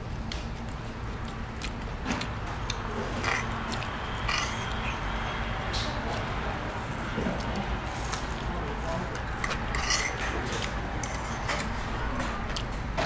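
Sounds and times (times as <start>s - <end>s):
people chewing food: 0.0s - 13.0s
steady low hum: 0.0s - 13.0s.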